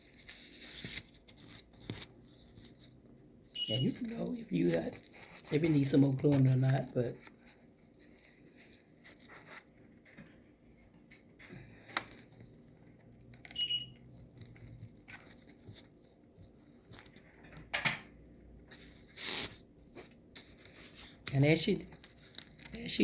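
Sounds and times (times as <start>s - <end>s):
soft rustles and taps of material: 0.0s - 3.2s
high beep: 3.6s - 4.0s, 13.6s - 14.0s.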